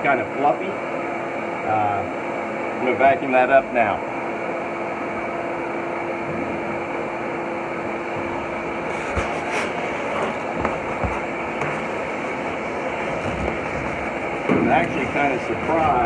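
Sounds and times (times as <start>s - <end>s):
nozzle knocking: 8.2s - 16.0s
vacuum cleaner running: 8.2s - 16.0s.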